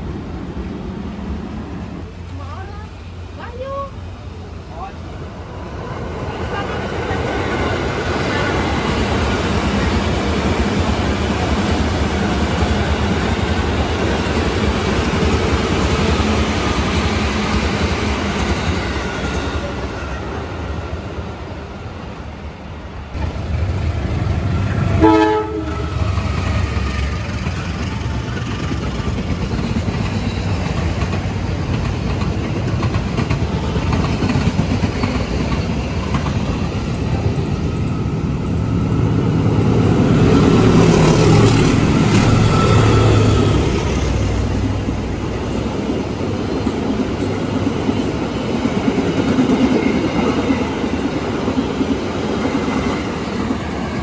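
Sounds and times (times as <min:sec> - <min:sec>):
train wheels rumbling on rails: 0:00.0 - 0:54.0
train horn blast: 0:25.0 - 0:26.1.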